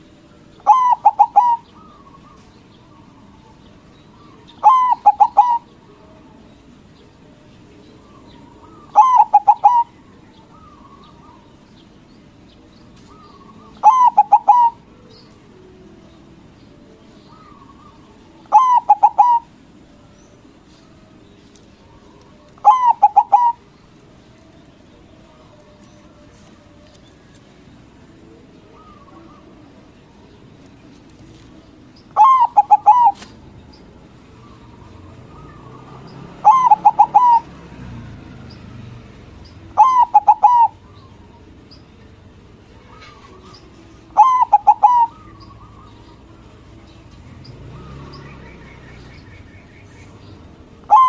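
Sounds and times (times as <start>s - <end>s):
dove cooing: 0.5s - 5.8s, 8.0s - 11.5s, 13.0s - 15.0s, 17.3s - 19.7s, 21.8s - 23.9s, 28.3s - 30.1s, 31.2s - 37.9s, 39.6s - 41.5s, 42.6s - 46.7s, 50.7s - 51.0s.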